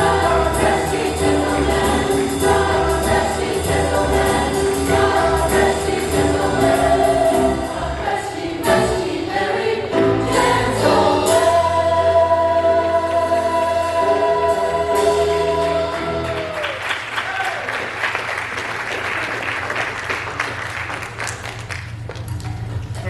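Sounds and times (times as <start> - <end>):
church choir singing: 0.0 - 16.4.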